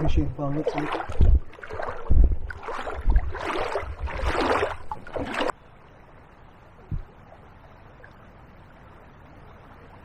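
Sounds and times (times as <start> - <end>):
water sloshing: 0.0 - 5.6
faint rush of water: 0.0 - 10.0.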